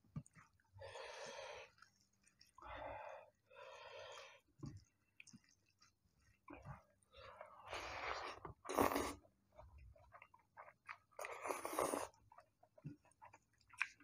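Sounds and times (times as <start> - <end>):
person chewing: 7.7 - 14.0.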